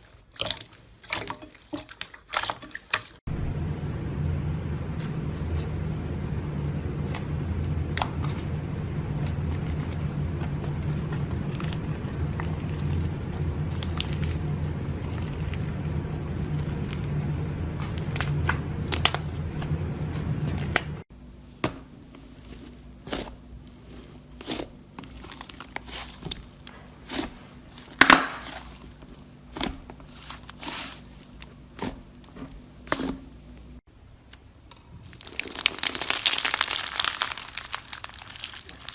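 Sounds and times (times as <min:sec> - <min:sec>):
low hum: 0:03.3 - 0:21.5
crunchy material crackling: 0:04.7 - 0:21.0, 0:35.0 - 0:38.9.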